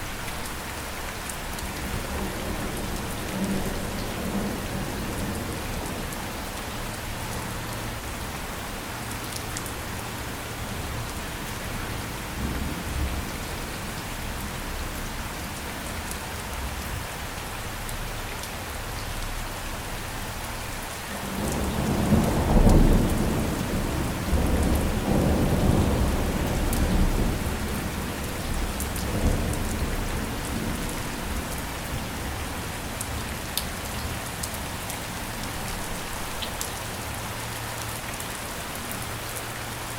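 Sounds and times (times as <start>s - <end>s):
steady rain: 0.0s - 39.9s
thunder rumbling: 21.1s - 33.3s.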